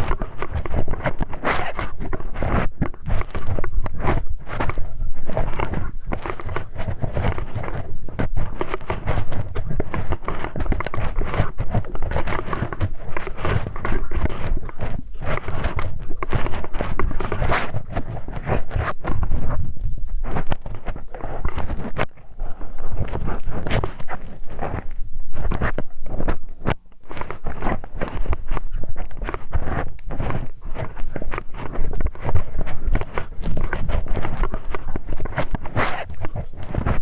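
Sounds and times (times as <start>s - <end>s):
metal wrench scraping microphone: 0.0s - 37.0s.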